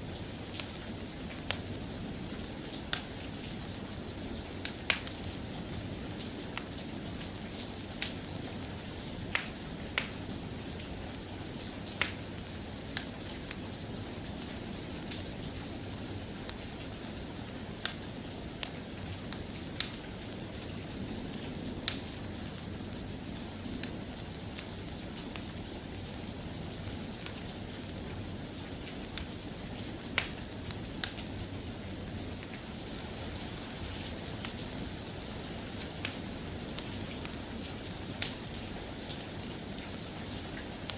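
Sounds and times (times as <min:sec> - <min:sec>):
soft rain: 0:00.0 - 0:40.9.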